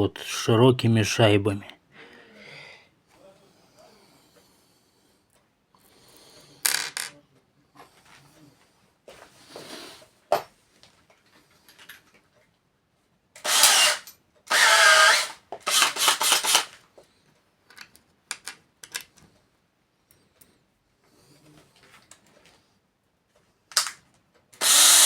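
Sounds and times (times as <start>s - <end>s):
power drill driving screws: 13.4s - 16.8s, 24.6s - 25.0s.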